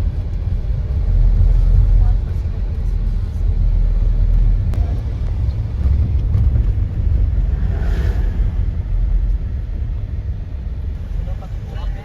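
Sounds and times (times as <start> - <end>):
motor vehicle rumble: 0.0 - 12.0.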